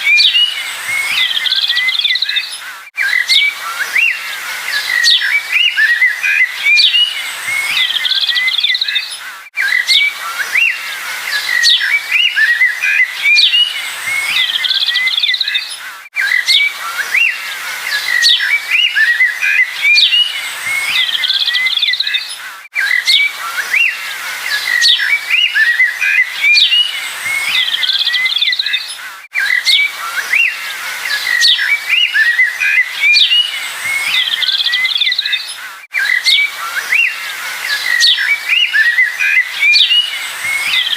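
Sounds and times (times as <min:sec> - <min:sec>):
small birds chirping and twittering: 0:00.0 - 0:40.9.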